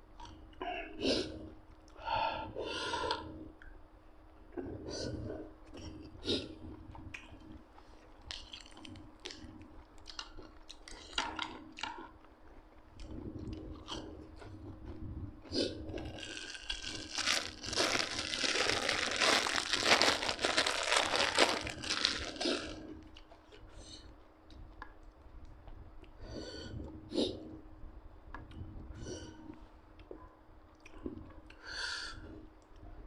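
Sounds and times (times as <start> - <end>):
food crunching and chewing: 5.6 - 26.2
dense crackling: 16.0 - 23.1.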